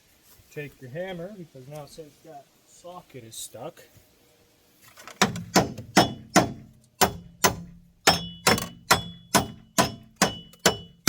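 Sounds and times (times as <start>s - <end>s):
hammer striking metal socket: 5.2s - 11.0s.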